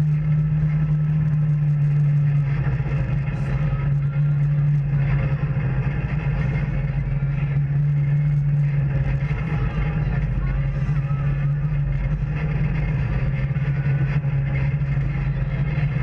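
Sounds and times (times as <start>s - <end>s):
off-road vehicle engine running: 0.0s - 16.0s.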